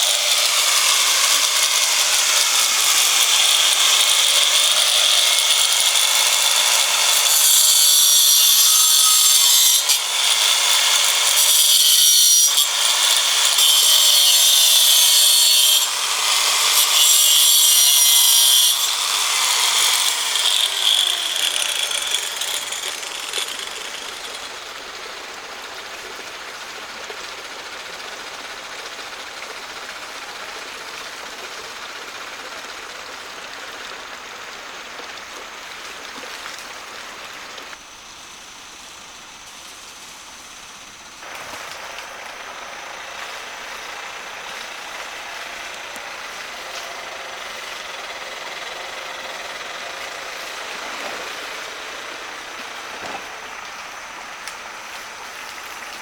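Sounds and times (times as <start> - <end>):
tool cutting wood: 0.0 - 24.8, 41.2 - 56.0.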